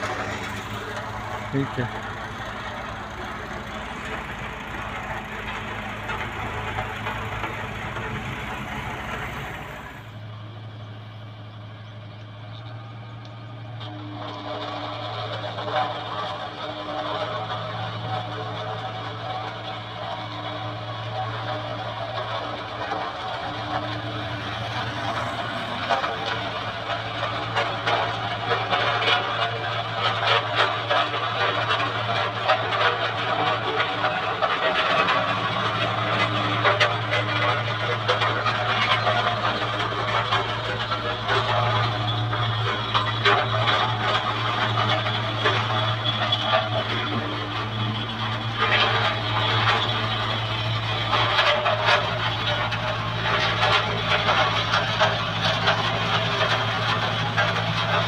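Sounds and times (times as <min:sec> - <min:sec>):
loud rough noise: 0:00.0 - 0:10.9, 0:12.7 - 0:58.0
diesel engine droning: 0:00.0 - 0:58.0
clicks and clatter: 0:12.2 - 0:58.0.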